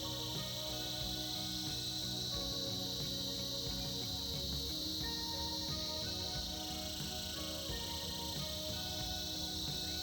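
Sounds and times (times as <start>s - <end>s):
cicadas buzzing: 0.0s - 10.0s
music playing: 0.0s - 10.0s.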